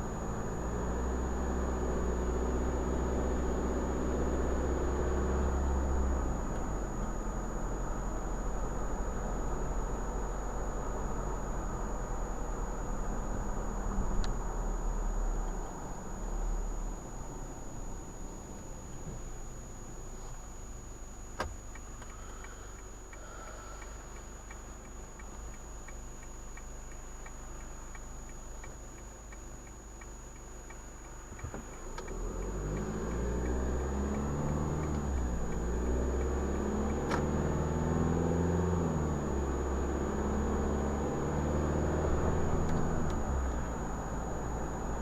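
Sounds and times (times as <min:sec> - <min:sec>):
car engine pulling away: 0:00.0 - 0:19.5, 0:21.4 - 0:45.0
regular ticking: 0:21.6 - 0:37.3.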